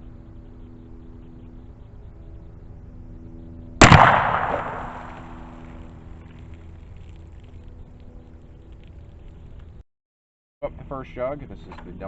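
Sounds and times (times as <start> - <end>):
gunshot echoing: 3.8 - 5.8.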